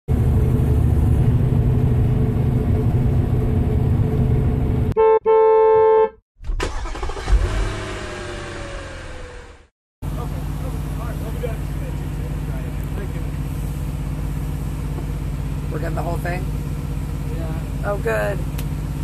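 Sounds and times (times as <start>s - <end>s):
truck engine running: 0.1s - 5.0s, 7.9s - 19.0s
vehicle noise with falling tone: 0.1s - 17.8s
truck horn blasts: 4.9s - 6.2s.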